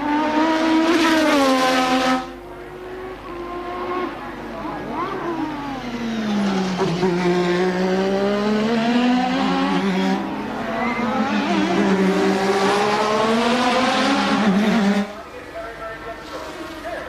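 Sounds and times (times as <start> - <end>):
racing car engine at high revs: 0.0 - 15.3.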